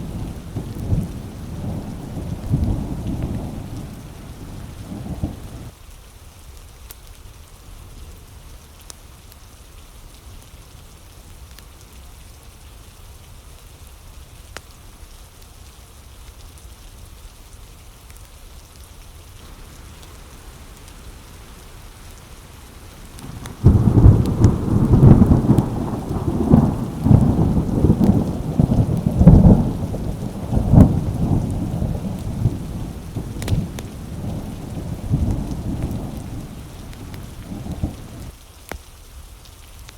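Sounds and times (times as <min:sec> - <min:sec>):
thunder rumbling and cracking: 0:00.0 - 0:05.7, 0:19.4 - 0:38.3
steady rain: 0:00.0 - 0:39.9.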